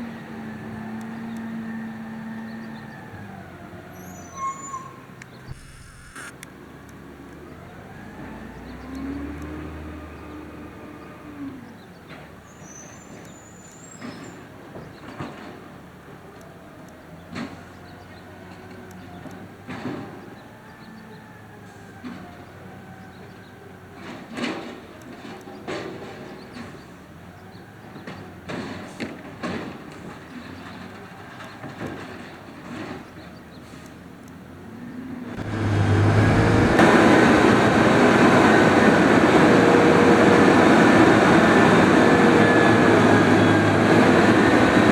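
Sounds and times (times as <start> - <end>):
garbage truck engine rumbling: 35.3 - 44.9.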